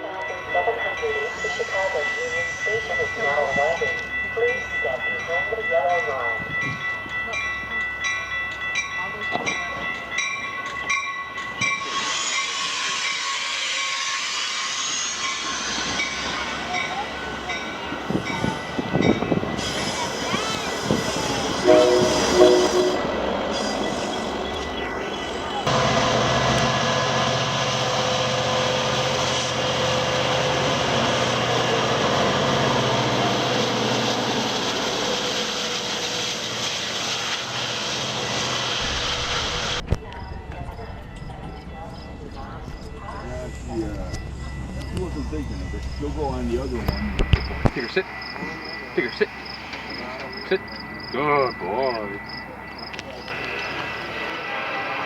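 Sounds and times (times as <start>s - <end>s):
train rushing hiss: 11.6s - 39.9s, 45.1s - 55.0s.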